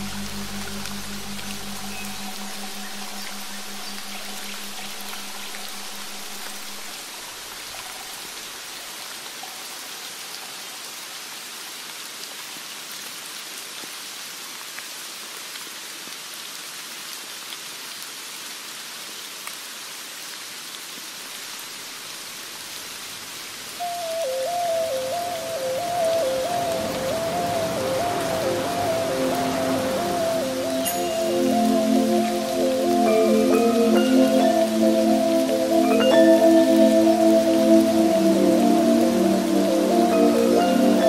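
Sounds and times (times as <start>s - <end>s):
low held music note: 0.0s - 6.8s
steady rain: 0.0s - 41.0s.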